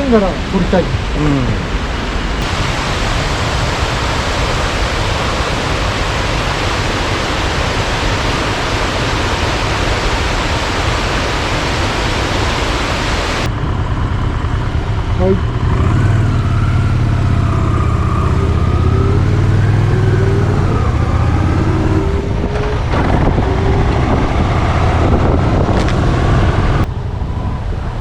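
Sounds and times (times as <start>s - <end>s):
waterfall rushing: 0.0s - 13.5s.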